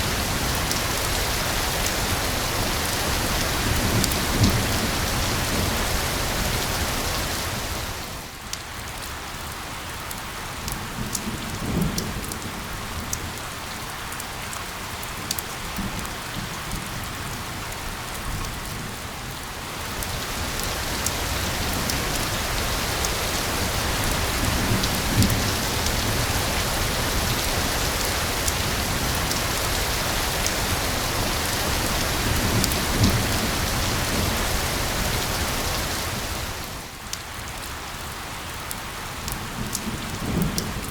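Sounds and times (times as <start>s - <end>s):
rain falling: 0.0s - 40.9s
thunder rumbling: 19.8s - 36.9s.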